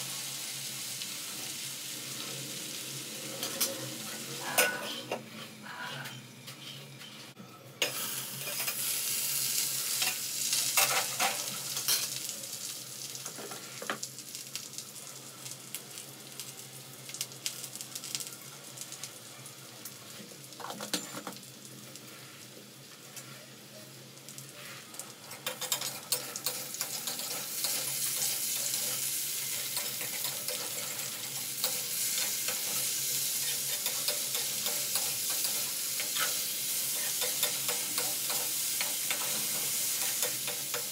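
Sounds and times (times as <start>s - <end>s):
potatoes sizzling in oil: 0.0s - 7.0s, 7.8s - 40.9s
metal utensils clinking: 25.3s - 40.9s.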